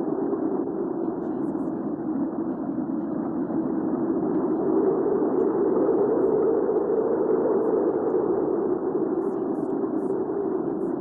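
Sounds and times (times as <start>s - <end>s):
low rush of wind: 0.0s - 11.0s.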